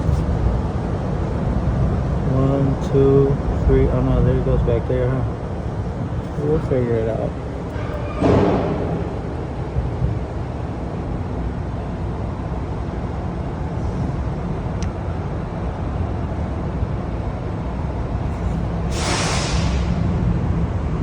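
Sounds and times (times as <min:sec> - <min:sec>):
short burst of hiss: 0:18.9 - 0:20.0.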